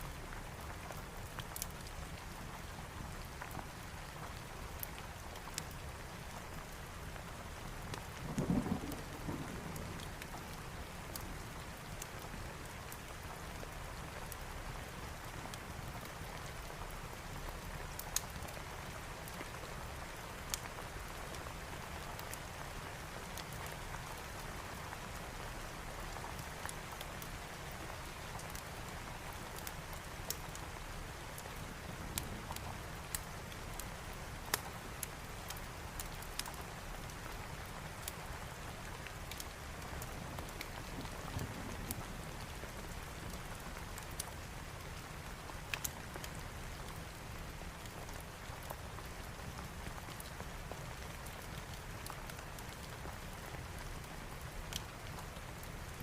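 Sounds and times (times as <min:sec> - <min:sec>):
rain pattering: 0:00.0 - 0:56.0
low thunder rumble: 0:08.2 - 0:10.0.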